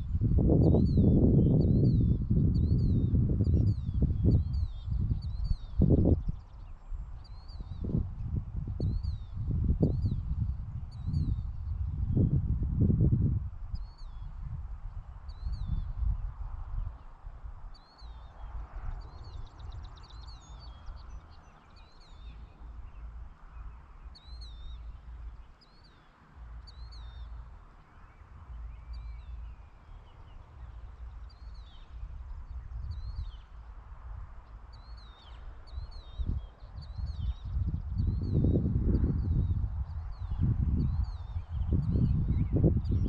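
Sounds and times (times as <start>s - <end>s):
birds chirping: 15.0s - 43.0s.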